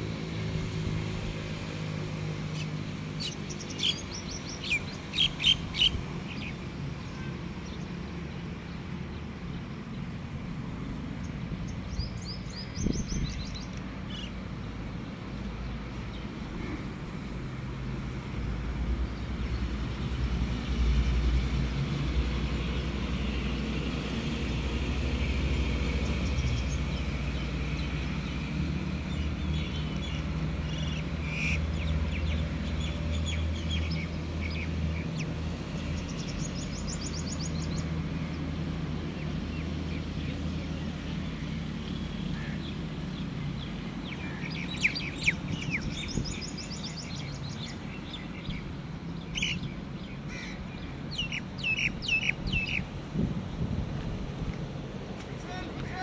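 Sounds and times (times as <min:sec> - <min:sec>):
birds chirping and calling: 0:02.5 - 0:06.6, 0:29.1 - 0:38.4, 0:41.4 - 0:53.3.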